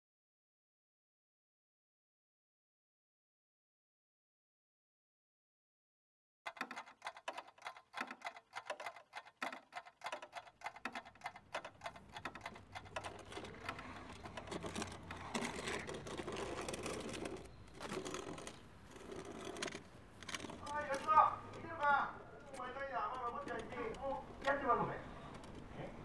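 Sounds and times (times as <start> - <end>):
wooden chest dragged on asphalt: 13.4 - 21.6.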